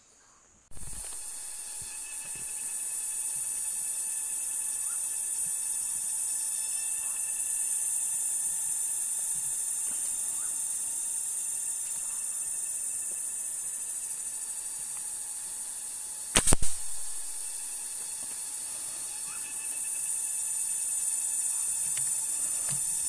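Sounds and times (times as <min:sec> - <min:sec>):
steady high-pitched hiss: 0:00.0 - 0:23.0
air rifle crack: 0:16.3 - 0:18.1.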